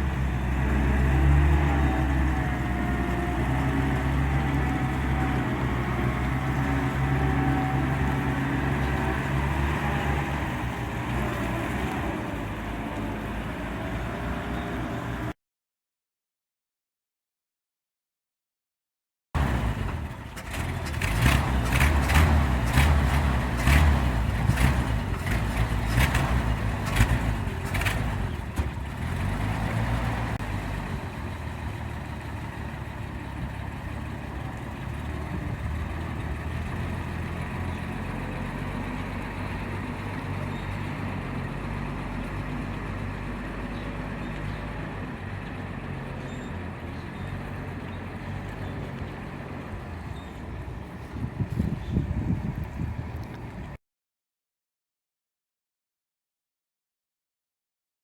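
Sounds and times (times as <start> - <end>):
truck engine running: 0.0 - 15.3, 19.4 - 53.8
engine pops and knocks: 19.4 - 29.2.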